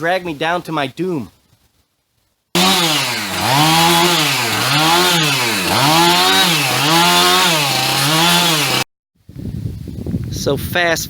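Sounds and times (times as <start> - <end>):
chainsaw cutting branches: 2.6 - 8.8.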